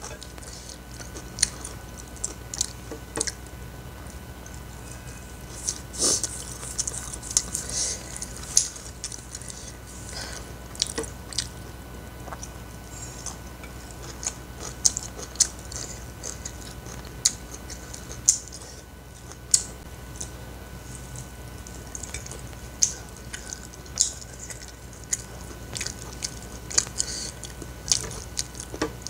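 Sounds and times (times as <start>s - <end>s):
faint steady hum: 0.0s - 29.0s
person chewing wetly: 0.0s - 29.0s.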